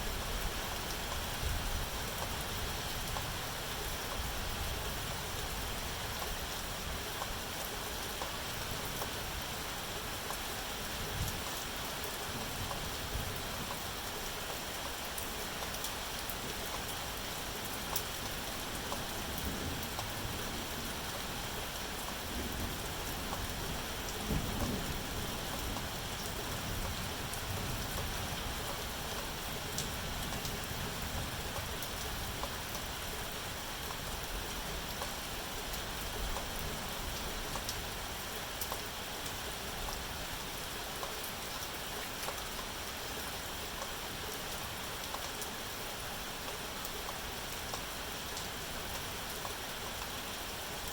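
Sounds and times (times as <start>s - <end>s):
steady rain falling: 0.0s - 50.9s
raindrop ticks: 13.6s - 21.3s, 22.0s - 33.0s, 33.8s - 40.1s, 40.8s - 45.6s, 46.4s - 50.2s.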